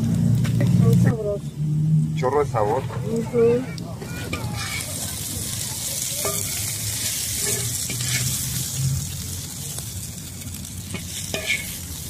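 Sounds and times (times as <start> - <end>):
vegetables sizzling on a griddle: 0.0 - 1.4, 2.2 - 12.0
metal spatula scraping and clicking: 6.2 - 8.4, 10.9 - 11.8.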